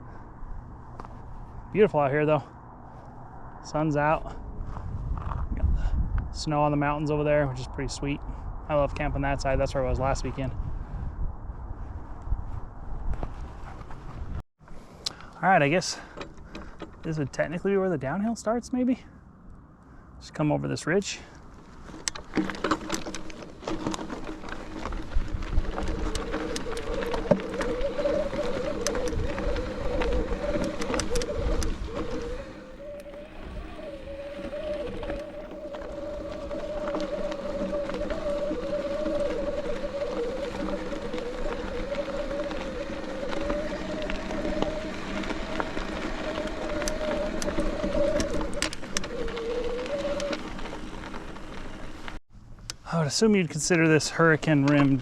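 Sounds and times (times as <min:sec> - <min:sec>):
wind rumbling on microphone: 0:00.0 - 0:15.0, 0:20.9 - 0:52.9
bike tyres on rocky trail: 0:00.0 - 0:19.2, 0:20.8 - 0:55.0
bike rattles and clicks: 0:13.0 - 0:17.6, 0:21.2 - 0:52.8
wavering high whine: 0:23.8 - 0:51.5.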